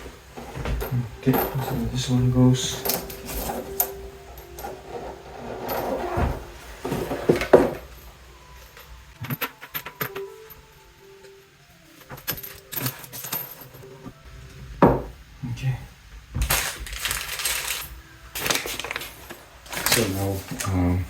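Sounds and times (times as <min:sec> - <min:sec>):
faucet fittings clinking and rattling: 0:00.1 - 0:10.4.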